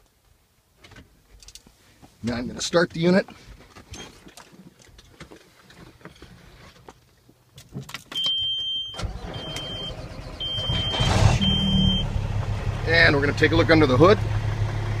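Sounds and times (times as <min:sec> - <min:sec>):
dashboard warning buzzer beeping: 0:08.2 - 0:12.1
diesel engine cranking and running: 0:09.0 - 0:15.0.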